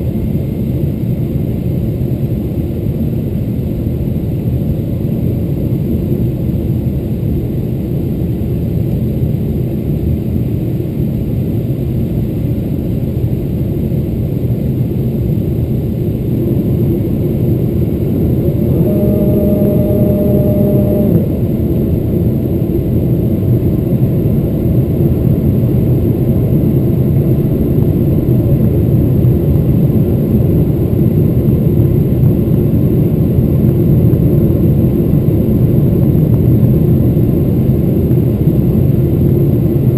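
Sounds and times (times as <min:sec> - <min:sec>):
jet engine and airflow roar: 0:00.0 - 0:39.9
short humming tone: 0:17.5 - 0:22.8.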